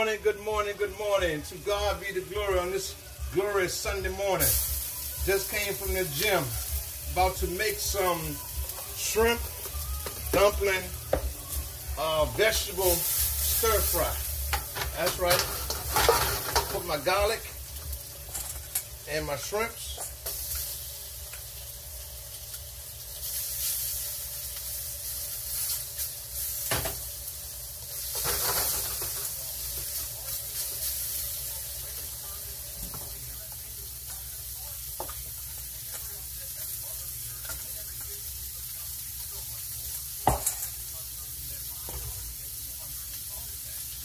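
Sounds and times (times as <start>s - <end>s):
food sizzling in hot oil: 0.0s - 44.0s.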